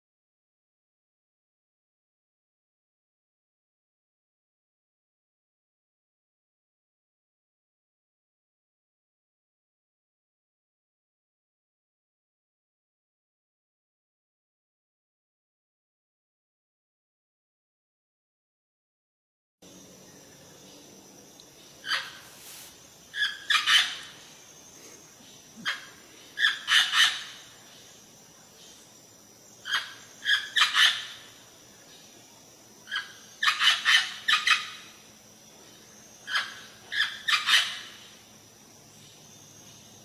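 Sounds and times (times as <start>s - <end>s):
parrot giving harsh raspy calls: 21.8s - 22.2s, 23.2s - 24.0s, 25.6s - 27.3s.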